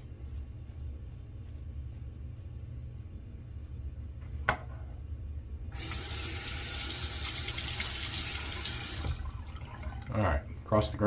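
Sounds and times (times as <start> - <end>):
tap water running into sink: 5.8 - 10.3.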